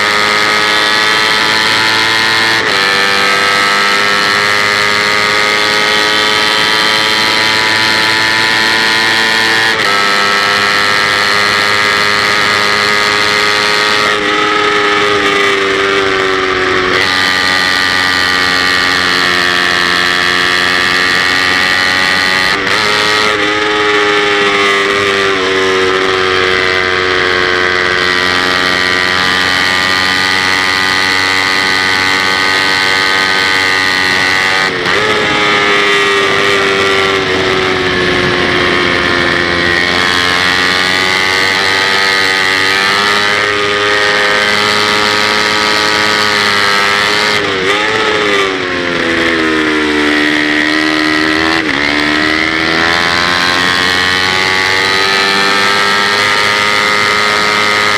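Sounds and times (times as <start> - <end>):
motorcycle engine at high revs: 0.0 - 57.9.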